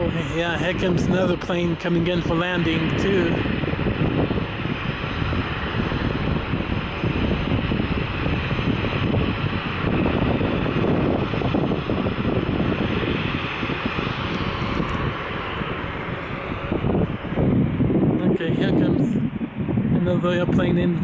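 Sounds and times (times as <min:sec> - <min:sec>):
airliner engines rumbling: 0:00.0 - 0:21.0.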